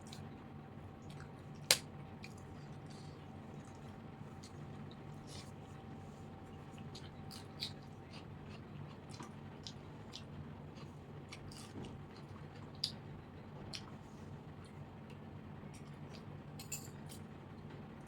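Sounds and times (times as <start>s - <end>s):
steady low hum: 0.0s - 18.0s
chewing and biting: 6.6s - 14.0s.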